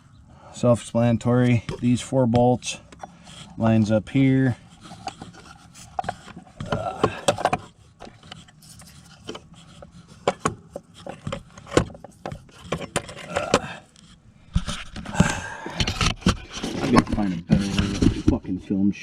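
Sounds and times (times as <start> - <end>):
scraping of parts: 0.6 - 18.5
knocks and clicks of parts: 5.9 - 8.4, 10.2 - 13.7.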